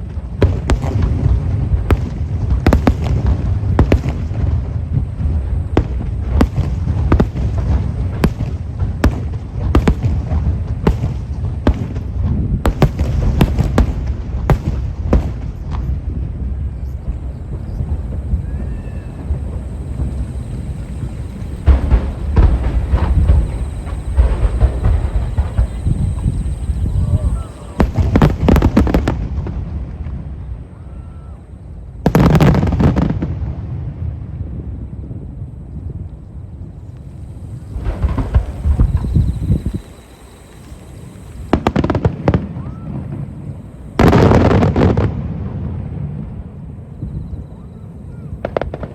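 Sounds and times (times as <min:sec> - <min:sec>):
low rumble of echoing booms: 0:00.0 - 0:30.8, 0:31.6 - 0:48.9
firework bangs: 0:00.0 - 0:48.9
firework shell bursts: 0:36.9 - 0:42.4.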